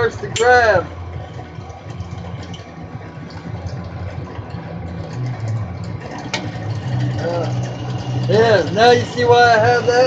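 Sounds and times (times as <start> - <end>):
drill press motor hum: 0.9 - 10.0.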